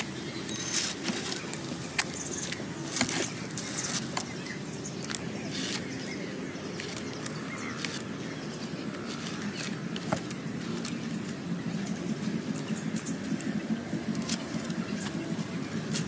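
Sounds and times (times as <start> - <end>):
twigs snapping: 0.0 - 11.3
leaves and twigs rustling: 0.0 - 16.0.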